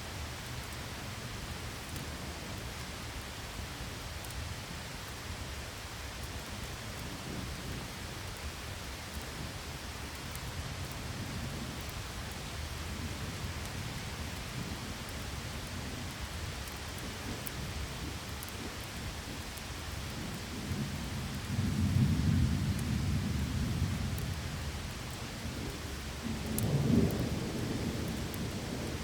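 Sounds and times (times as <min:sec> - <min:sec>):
heavy rain: 0:00.0 - 0:29.0
faint light ticks: 0:01.9 - 0:02.1, 0:04.2 - 0:04.4, 0:26.4 - 0:27.3
thunder rumbling: 0:25.6 - 0:29.0.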